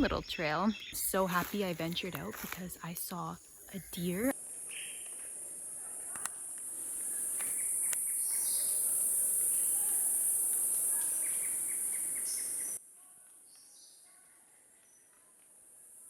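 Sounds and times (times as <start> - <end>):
insects buzzing: 0.0 - 12.8
bird chirps and calls: 7.1 - 12.8.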